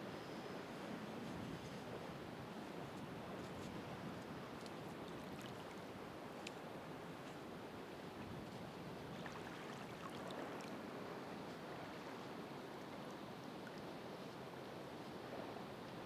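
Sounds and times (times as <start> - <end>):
faint ticks: 6.4 - 6.6.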